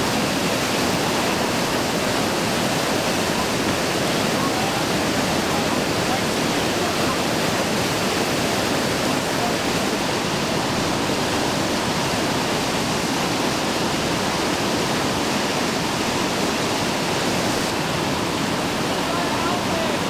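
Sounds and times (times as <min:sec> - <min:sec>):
rushing whitewater: 0:00.0 - 0:20.0.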